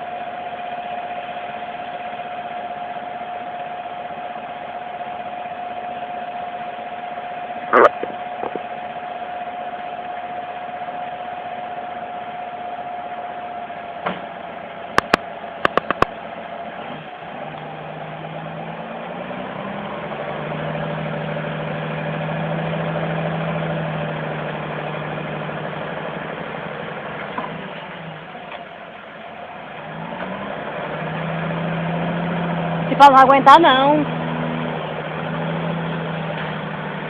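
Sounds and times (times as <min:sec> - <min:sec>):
vehicle engine running: 0:00.0 - 0:37.0
sharp clicks: 0:15.0 - 0:16.1.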